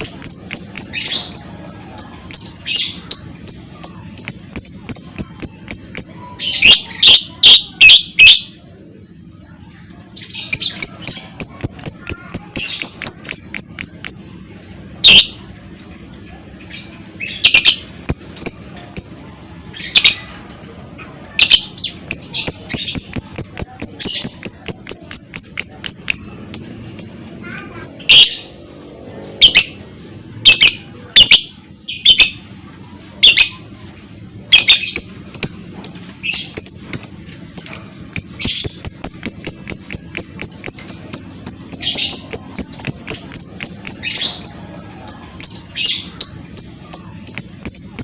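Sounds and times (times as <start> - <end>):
bird chattering in rapid chirps: 0.0 - 8.6, 10.1 - 14.4, 15.0 - 15.5, 16.7 - 20.3, 21.3 - 28.6, 30.4 - 33.7, 34.4 - 48.0
harsh bird squawks: 0.0 - 8.6, 21.2 - 28.6, 30.4 - 32.4.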